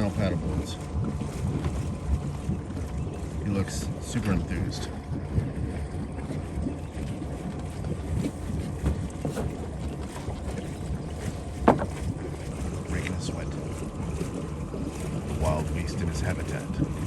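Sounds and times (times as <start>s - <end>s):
wind on microphone: 0.0s - 17.0s
soft knocks: 11.6s - 12.1s.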